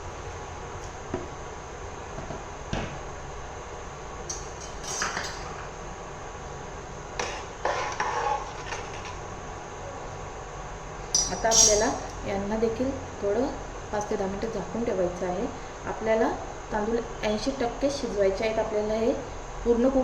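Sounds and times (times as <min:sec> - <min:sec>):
metal spoon scraping steel pot: 0:07.2 - 0:09.2, 0:11.2 - 0:12.0.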